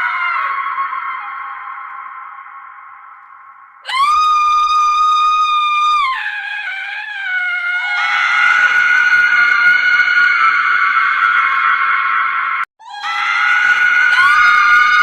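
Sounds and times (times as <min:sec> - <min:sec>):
woman screaming: 0:03.8 - 0:10.7, 0:12.8 - 0:15.0
second fuller scream: 0:03.8 - 0:15.0.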